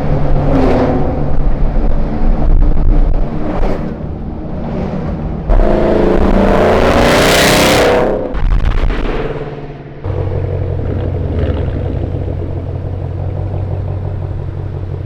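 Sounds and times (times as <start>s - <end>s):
car engines revving: 0.0s - 15.0s
car passing close: 9.2s - 15.0s.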